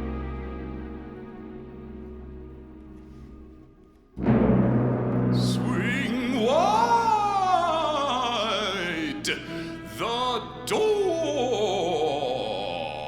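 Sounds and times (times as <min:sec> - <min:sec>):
avant-garde orchestral music: 0:00.0 - 0:13.0
sharp orchestral hits: 0:04.2 - 0:10.7.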